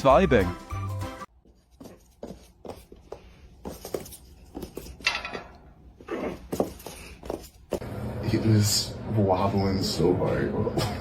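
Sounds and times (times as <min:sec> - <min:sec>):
knocks and scuffs: 0:01.3 - 0:07.8.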